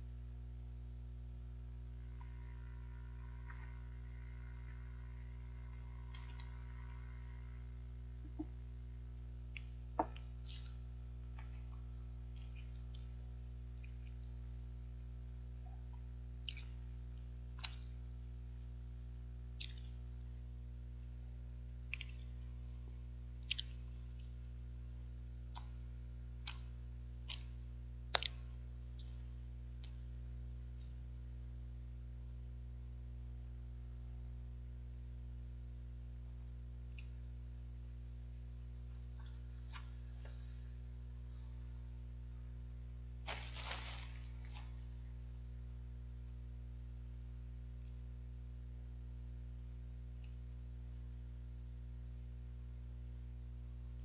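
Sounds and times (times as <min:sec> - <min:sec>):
steady low hum: 0:00.0 - 0:54.0
wet mouth clicks and lip smacks: 0:09.5 - 0:10.8, 0:12.3 - 0:13.1, 0:16.4 - 0:16.8, 0:17.6 - 0:17.9, 0:19.6 - 0:20.0, 0:21.9 - 0:22.4, 0:23.4 - 0:24.3, 0:27.3 - 0:29.2.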